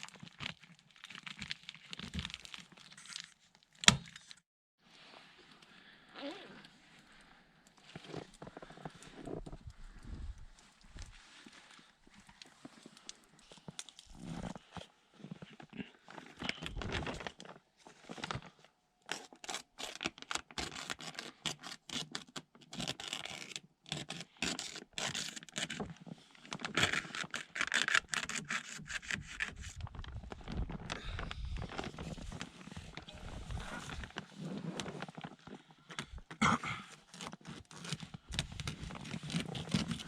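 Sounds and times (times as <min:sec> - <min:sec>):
rubbing and scraping: 0:26.7 - 0:35.2.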